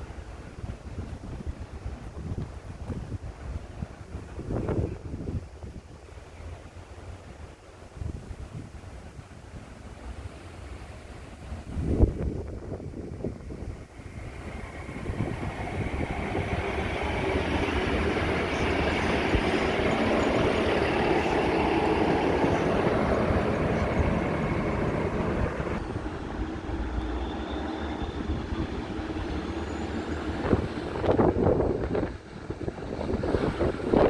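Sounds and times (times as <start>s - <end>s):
diesel train rumbling past: 0.0s - 34.0s.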